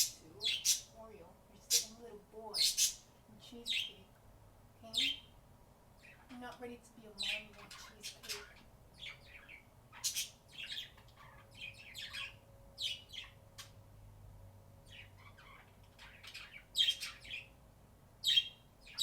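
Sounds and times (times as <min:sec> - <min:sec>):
budgies chirping and chattering: 0:00.0 - 0:00.9, 0:01.6 - 0:03.0, 0:03.6 - 0:04.0, 0:07.1 - 0:13.7, 0:14.9 - 0:17.5, 0:18.2 - 0:19.0.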